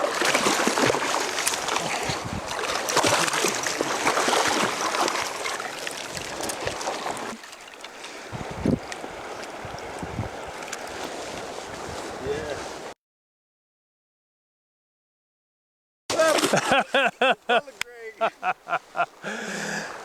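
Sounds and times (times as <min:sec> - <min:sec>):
river water rushing: 0:00.0 - 0:11.8, 0:16.1 - 0:20.0.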